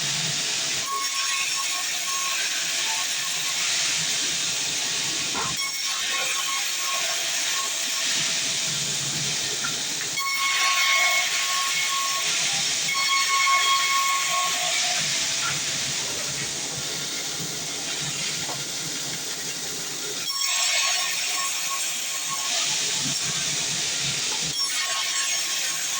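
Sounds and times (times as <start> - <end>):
bandsaw cutting log: 0.8 - 18.7.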